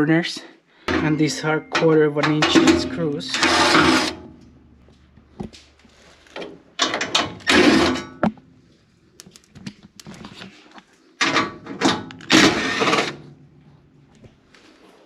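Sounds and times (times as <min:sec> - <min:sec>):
clicks of screws and metal: 0:05.5 - 0:08.4
cordless drill whirring: 0:12.2 - 0:13.2.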